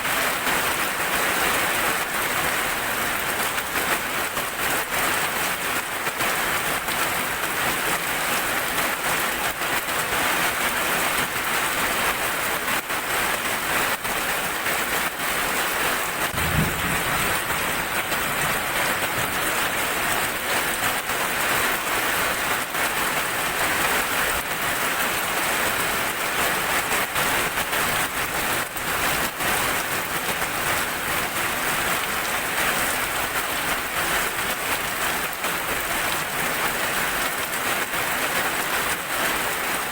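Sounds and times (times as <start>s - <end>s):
rain pattering on surfaces: 0.0s - 39.9s
low thunder rumble: 16.2s - 20.7s.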